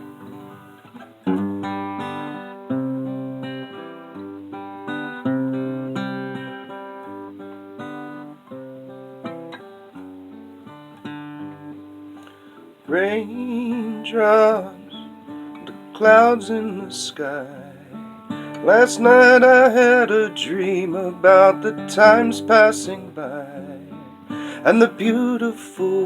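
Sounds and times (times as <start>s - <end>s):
acoustic guitar strumming: 0.0s - 26.0s
person singing: 12.9s - 15.1s, 15.7s - 26.0s.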